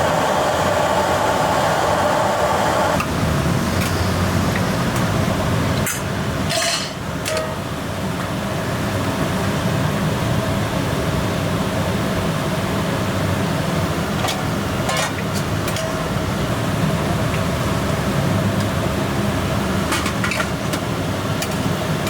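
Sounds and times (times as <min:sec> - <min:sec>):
kitchen rumbling hum: 0:00.0 - 0:09.6, 0:12.6 - 0:22.0
utensils or dishes clinking: 0:05.8 - 0:07.6, 0:14.3 - 0:16.1.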